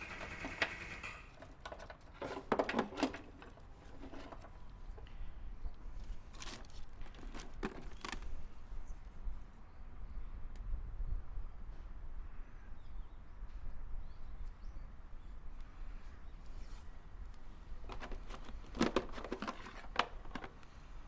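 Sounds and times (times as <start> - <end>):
tools clicking and clattering: 0.0 - 5.1, 17.9 - 20.6.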